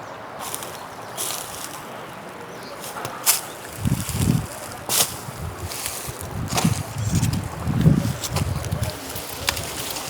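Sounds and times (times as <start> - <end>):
river water flowing: 0.0 - 6.4.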